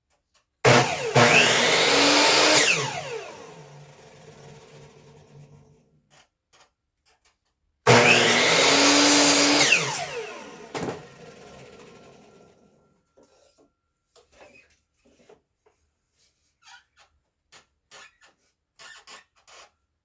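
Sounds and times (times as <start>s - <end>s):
miter saw cutting wood: 0.7s - 5.6s, 7.9s - 12.5s
saw motor winding down: 0.7s - 5.6s, 7.9s - 12.6s.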